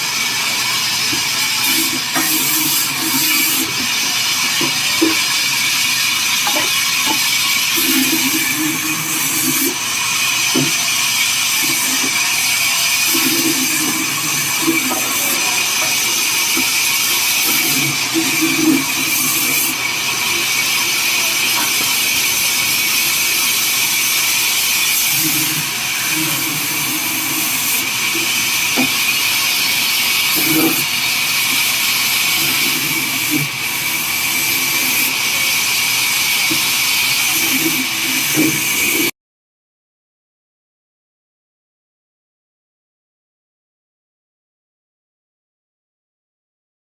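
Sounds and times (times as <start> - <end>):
band saw cutting wood: 0.0 - 39.1
muffled voices: 0.3 - 7.2, 11.6 - 23.9.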